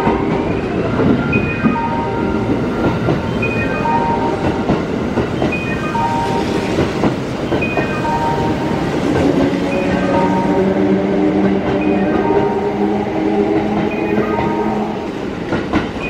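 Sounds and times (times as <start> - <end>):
train wheels clattering: 0.0 - 16.0
electronic chime tones: 0.2 - 4.6, 5.4 - 8.9, 9.7 - 10.6, 13.8 - 15.0.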